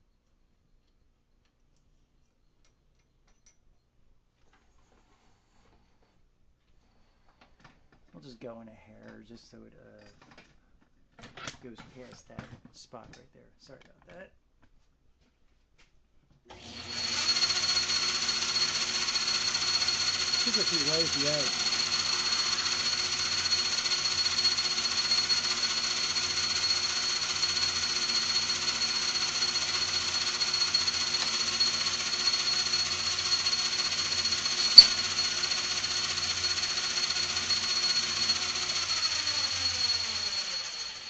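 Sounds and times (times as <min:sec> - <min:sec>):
metal lathe whining: 0:16.6 - 0:41.0
sharp click: 0:34.7 - 0:35.0.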